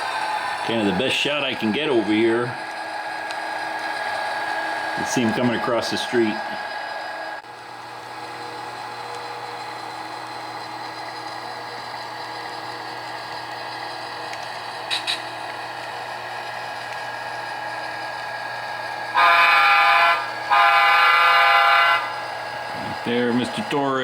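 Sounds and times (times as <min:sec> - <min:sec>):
model locomotive engine sound: 0:00.0 - 0:24.0
multi-tone train horn: 0:19.1 - 0:22.2.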